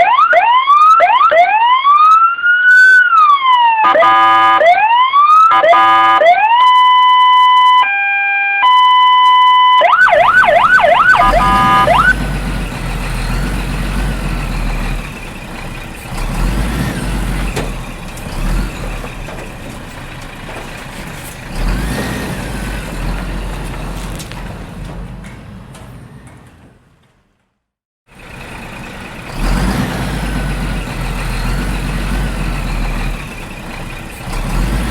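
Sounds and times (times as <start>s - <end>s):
electronic toy siren: 0.0s - 12.2s.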